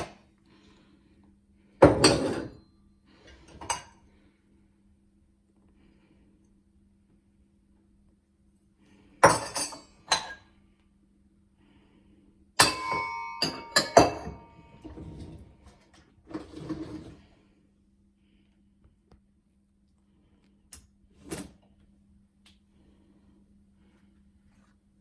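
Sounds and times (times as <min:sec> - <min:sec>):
dishes clinking: 0:01.8 - 0:02.6, 0:09.2 - 0:10.5, 0:12.6 - 0:15.5.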